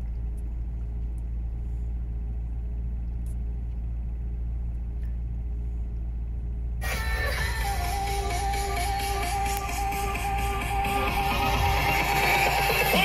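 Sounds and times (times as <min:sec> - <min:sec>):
car engine idling: 0:00.0 - 0:13.0
music from car stereo: 0:06.8 - 0:13.0.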